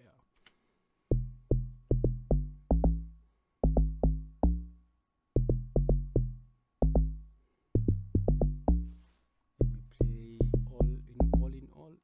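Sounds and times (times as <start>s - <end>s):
log drum bass hits: 1.1s - 4.7s, 5.4s - 7.2s, 7.8s - 8.9s, 9.6s - 11.6s.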